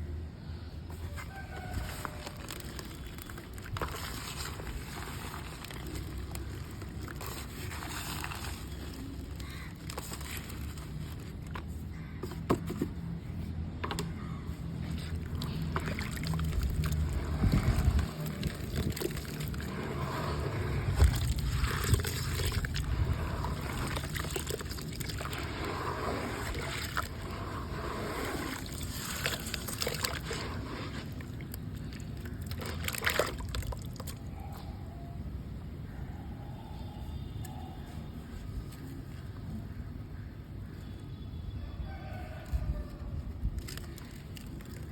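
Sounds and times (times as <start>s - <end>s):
mud sloshing in water: 0.9s - 12.0s, 14.1s - 34.4s, 42.5s - 44.9s
crunchy crackles: 1.0s - 12.1s, 14.8s - 34.2s, 42.4s - 44.9s.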